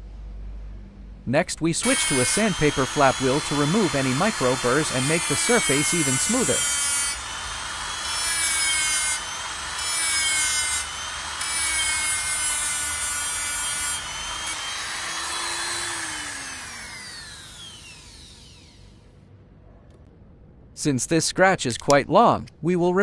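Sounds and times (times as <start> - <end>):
flap wheel sanding hiss: 1.8 - 18.3
grinder spinning down: 1.8 - 19.0
die grinder whine: 1.8 - 19.1.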